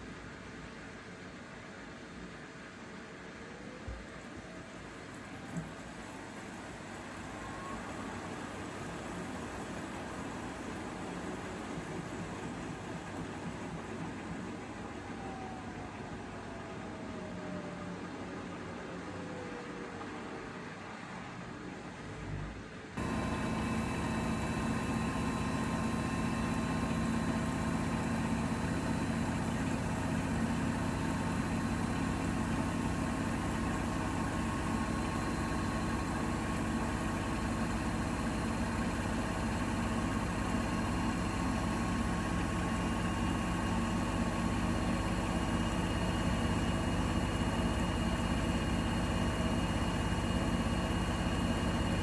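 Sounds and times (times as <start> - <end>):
washing machine running: 4.9 - 16.2, 23.0 - 52.0
high whine: 23.0 - 32.4.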